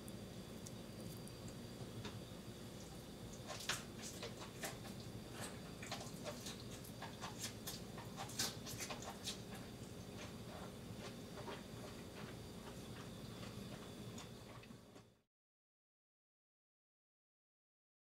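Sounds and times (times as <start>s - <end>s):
faint crunchy chewing: 0.0s - 15.1s.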